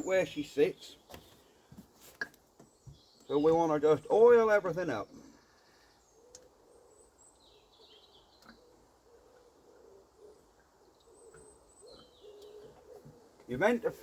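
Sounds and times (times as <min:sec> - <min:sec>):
high falling bird chirps: 0:02.6 - 0:13.6.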